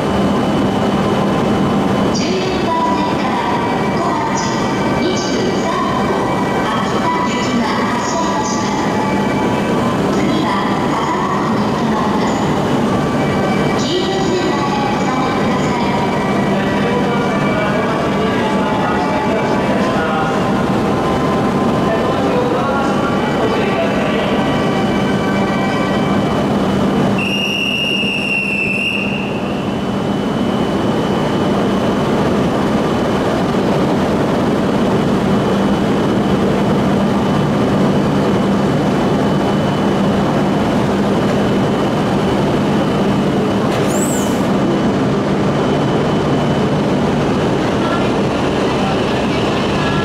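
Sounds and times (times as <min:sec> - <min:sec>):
standing train hum and hiss: 0:00.0 - 0:50.0
brief high squeak: 0:43.7 - 0:44.5.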